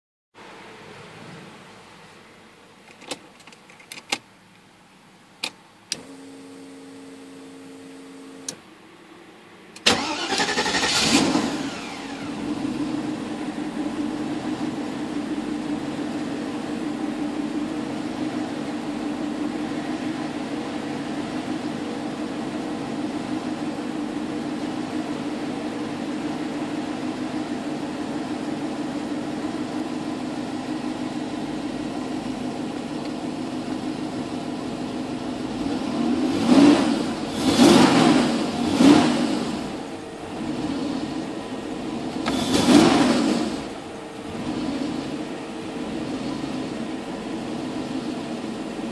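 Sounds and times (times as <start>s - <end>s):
car engine starting and idling: 0.4s - 48.9s
engine revving: 9.9s - 13.4s, 35.4s - 48.3s.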